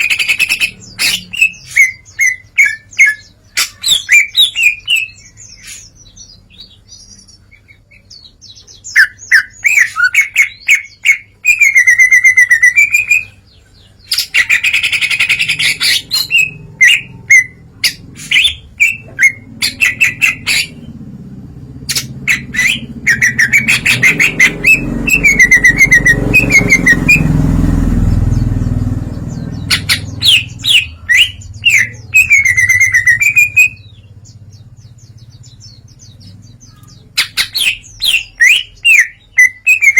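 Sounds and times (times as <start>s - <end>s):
bird singing whistles and trills: 0.0s - 20.8s, 21.9s - 27.4s, 29.2s - 39.9s.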